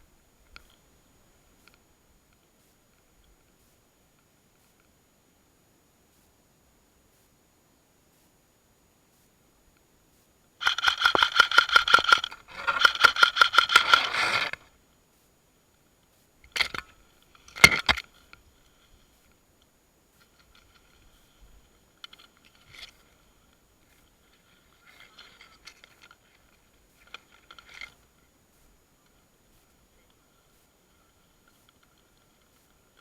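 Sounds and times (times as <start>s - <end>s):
airsoft rifle full-auto bursts: 10.6s - 14.6s
gearbox whine: 10.6s - 14.7s.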